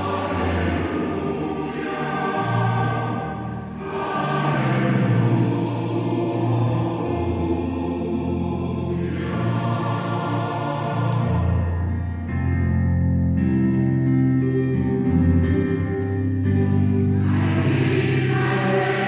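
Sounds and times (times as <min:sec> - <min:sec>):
choir singing: 0:00.0 - 0:12.4, 0:16.7 - 0:19.0
piano accompaniment: 0:00.0 - 0:19.0.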